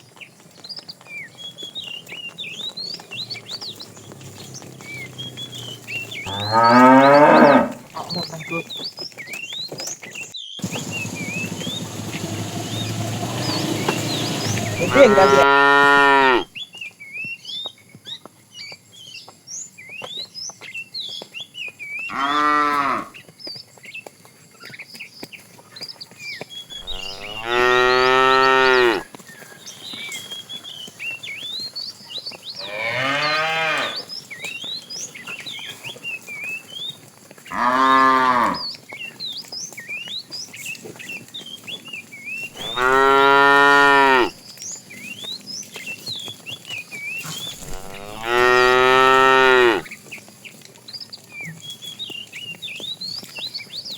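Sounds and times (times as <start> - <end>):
cattle mooing: 4.1 - 8.3, 12.6 - 16.5, 22.1 - 23.1, 26.8 - 29.0, 32.6 - 34.1, 37.5 - 38.6, 42.6 - 44.3, 47.6 - 49.8.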